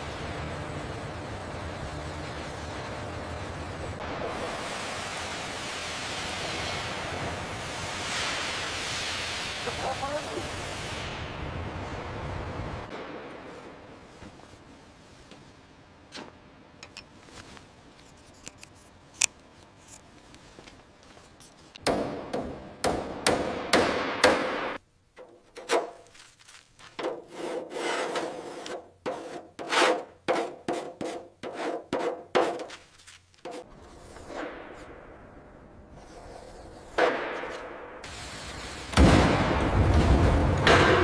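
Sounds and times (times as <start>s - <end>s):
hand scraping strokes on a surface: 25.2s - 33.7s.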